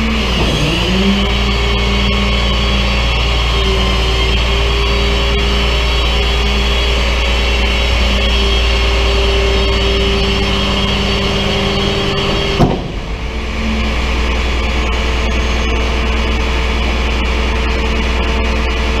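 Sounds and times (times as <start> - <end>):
vehicle engine humming: 0.0 - 19.0
sharp knock: 12.5 - 13.1.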